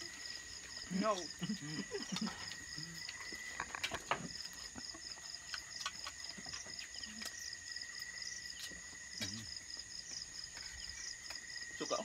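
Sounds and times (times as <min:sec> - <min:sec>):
insects trilling and chirping: 0:00.0 - 0:12.0.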